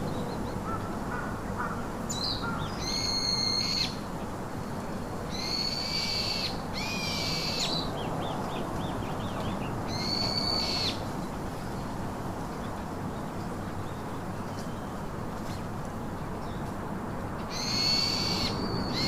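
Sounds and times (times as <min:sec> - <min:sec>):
steady background hiss: 0:00.0 - 0:19.0
bird drawn-out high calls: 0:00.6 - 0:04.0, 0:05.3 - 0:07.8, 0:17.5 - 0:19.0.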